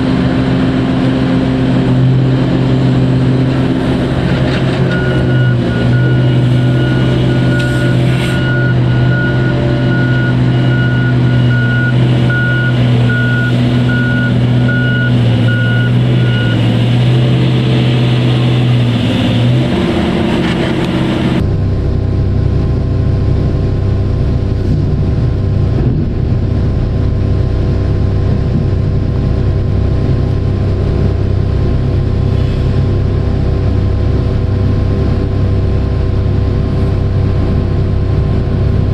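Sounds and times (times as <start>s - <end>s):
diesel engine running: 0.0s - 38.9s
lower-pitched engine running: 0.0s - 38.9s
reversing alarm beeping: 4.8s - 17.3s.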